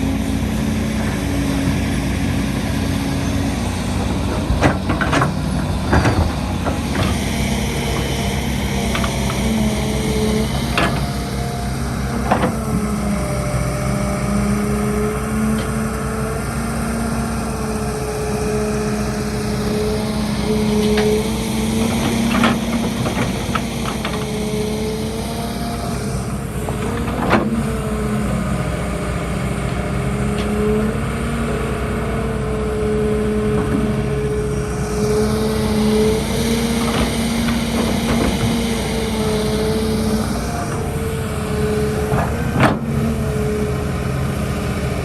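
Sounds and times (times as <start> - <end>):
excavator diesel engine: 0.0 - 45.0
bucket clanking on truck bed: 0.9 - 7.4.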